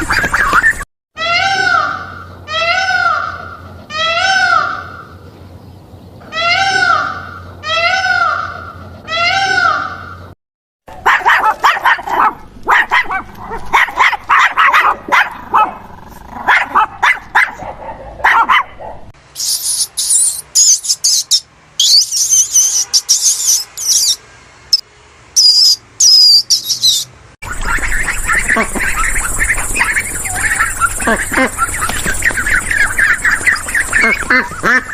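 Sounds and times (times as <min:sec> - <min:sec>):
small dog yipping: 0:11.0 - 0:15.7
high-pitched squeaks and chirps: 0:19.4 - 0:24.8, 0:25.4 - 0:34.9.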